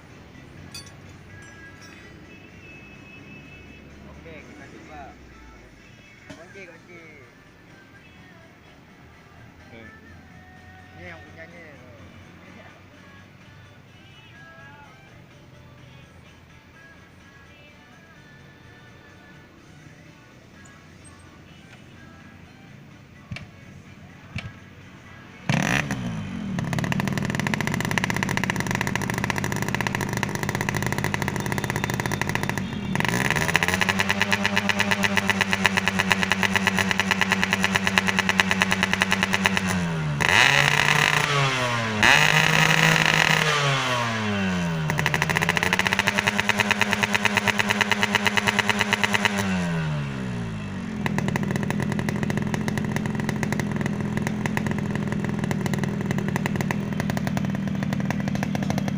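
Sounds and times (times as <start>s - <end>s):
two-stroke motorcycle engine revving: 25.4s - 58.9s.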